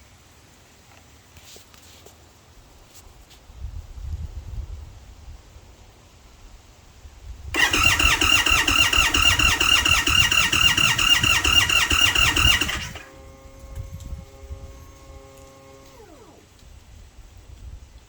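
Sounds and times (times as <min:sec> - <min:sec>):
motorcycle electric starter cranking: 0:07.6 - 0:16.8.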